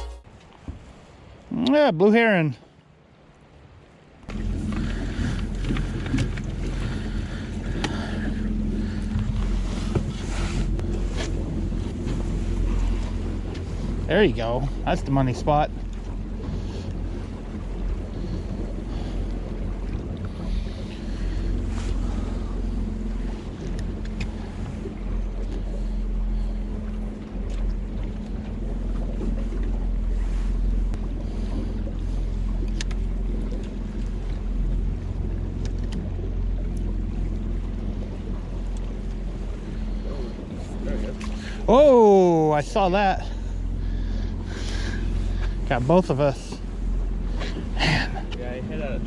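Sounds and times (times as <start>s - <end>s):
boat engine humming: 0.0s - 49.0s
rushing water: 0.0s - 49.0s
light ticks: 32.6s - 33.0s, 35.6s - 36.1s.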